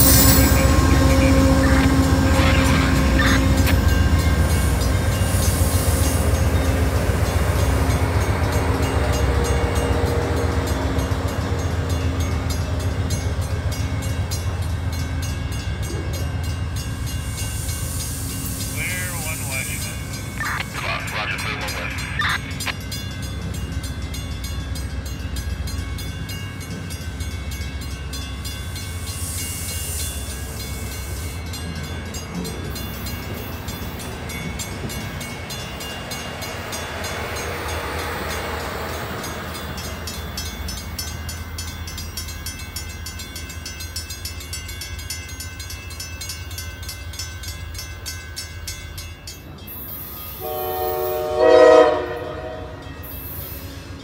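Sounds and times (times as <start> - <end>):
passenger train rolling past: 0.0 - 54.0
locomotive air horn blast: 50.4 - 52.7.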